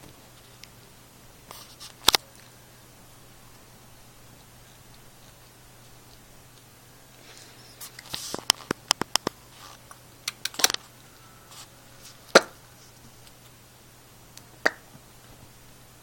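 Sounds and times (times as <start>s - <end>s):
sharp clicks and knocks: 8.0s - 10.8s.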